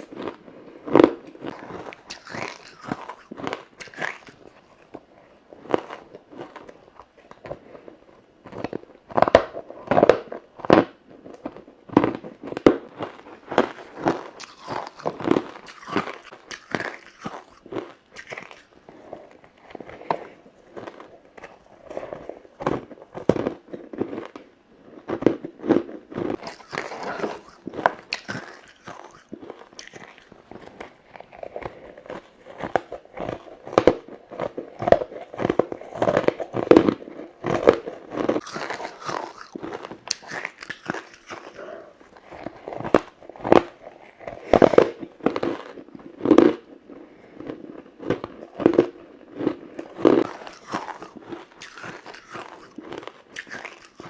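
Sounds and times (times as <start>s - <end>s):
crunching ice between teeth: 0.0s - 7.6s, 8.4s - 24.5s, 25.1s - 46.7s, 47.4s - 54.0s.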